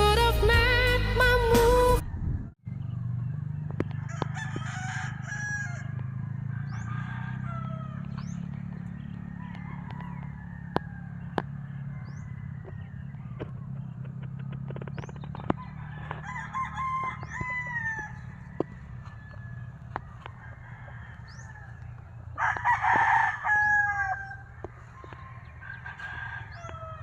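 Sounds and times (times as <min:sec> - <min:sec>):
roosters crowing: 0:03.2 - 0:27.0
chickens clucking: 0:03.7 - 0:27.0
small birds chirping: 0:06.0 - 0:16.3, 0:17.0 - 0:22.4, 0:24.2 - 0:27.0.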